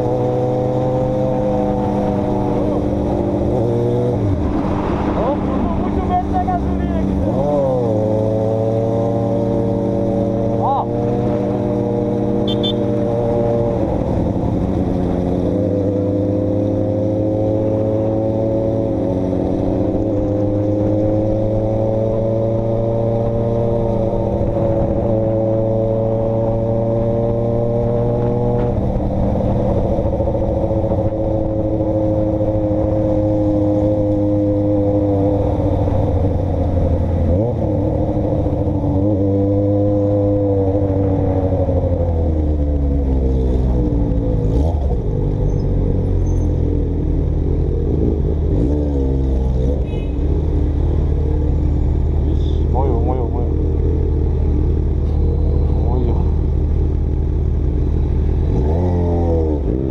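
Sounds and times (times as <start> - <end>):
vehicle engine running: 12.3 - 16.1, 35.3 - 59.9.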